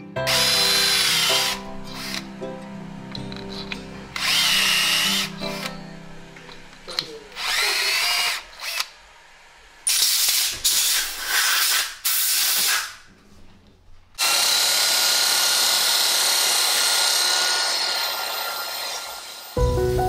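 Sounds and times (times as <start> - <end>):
cordless drill spinning: 0.3 - 2.3, 3.3 - 5.7, 6.5 - 9.1, 9.9 - 12.9, 14.2 - 19.6.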